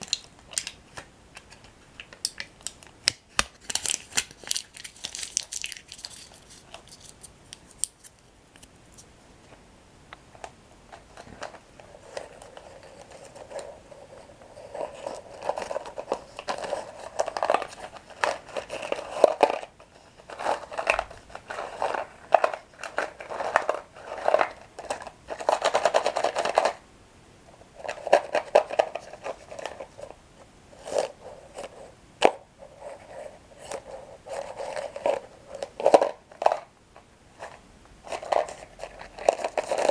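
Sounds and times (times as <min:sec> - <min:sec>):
crunching and chewing breadsticks: 0:00.0 - 0:08.7, 0:11.0 - 0:26.8.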